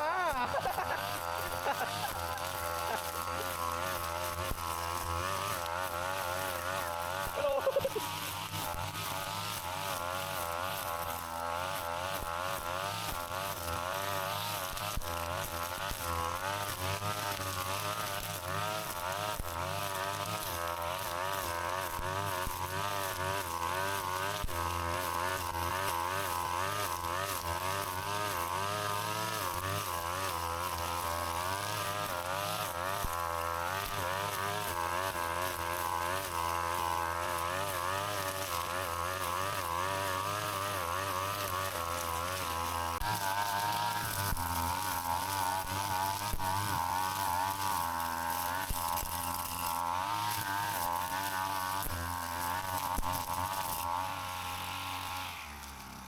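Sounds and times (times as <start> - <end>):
brush cutter engine running: 0.0 - 56.0.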